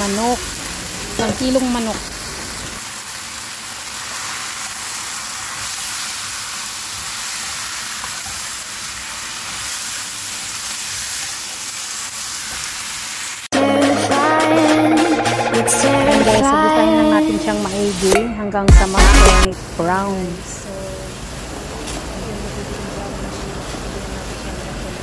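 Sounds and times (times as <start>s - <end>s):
chicken sizzling in a wok: 0.0s - 13.5s, 19.6s - 25.0s
music: 13.5s - 19.5s.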